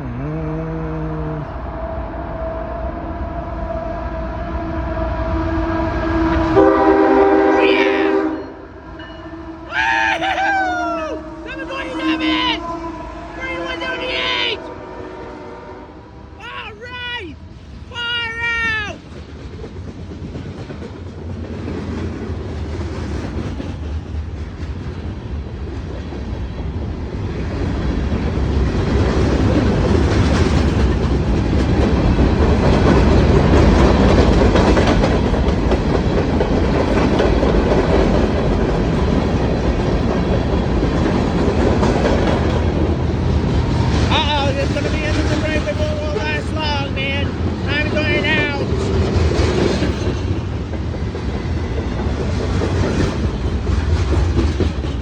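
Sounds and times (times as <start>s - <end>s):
freight train wheels on rails: 1.2s - 55.0s.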